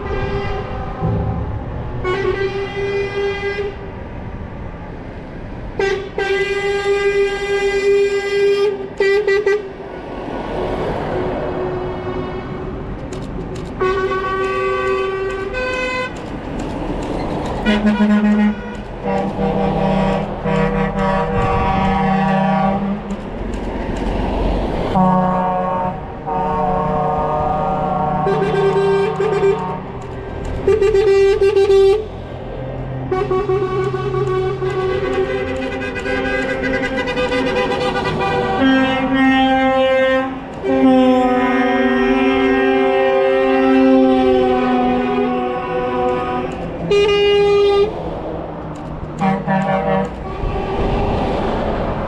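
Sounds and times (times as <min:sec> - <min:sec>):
truck air horns blasting: 0:00.0 - 0:03.9, 0:05.8 - 0:09.8, 0:13.8 - 0:16.2, 0:17.6 - 0:23.2, 0:25.0 - 0:32.2, 0:32.9 - 0:48.0, 0:49.2 - 0:51.2
truck engines rumbling: 0:00.0 - 0:52.0.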